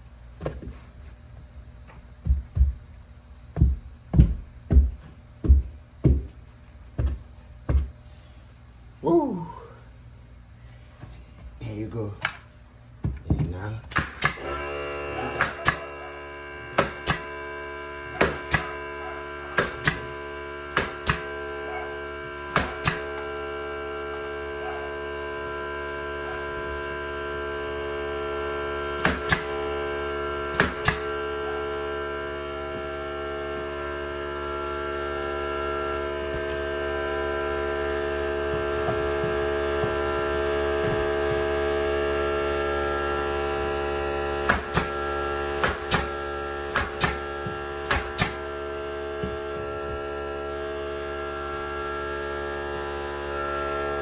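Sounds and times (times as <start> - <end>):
steady electrical hum: 0.0 - 54.0
sharp tool strikes: 15.4 - 15.9, 16.7 - 17.3, 18.2 - 18.8, 19.5 - 20.1, 20.7 - 21.3, 22.5 - 23.1, 29.0 - 29.6, 30.5 - 31.1, 44.4 - 45.0, 45.6 - 48.5.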